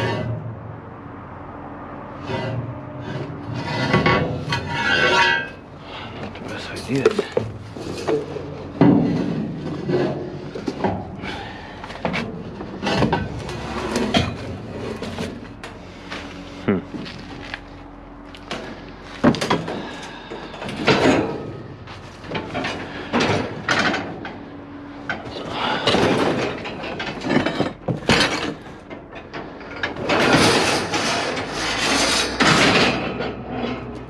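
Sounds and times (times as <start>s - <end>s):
scrap metal clanking: 0.0s - 0.5s, 2.2s - 34.0s
metal scraping and rattling: 0.0s - 0.6s, 2.1s - 34.0s.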